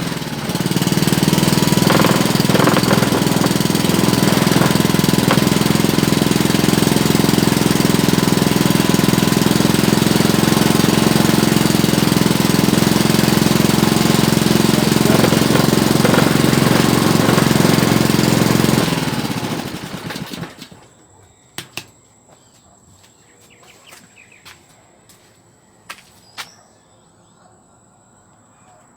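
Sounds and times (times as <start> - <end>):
engine winding down: 0.0 - 20.8
small engine running: 0.0 - 20.9.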